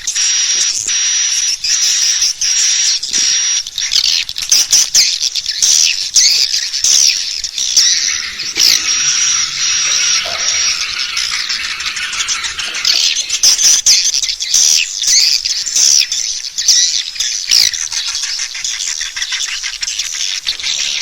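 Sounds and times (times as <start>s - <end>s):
swiftlets chirping and twittering: 6.2s - 21.0s
held high note: 7.8s - 13.8s.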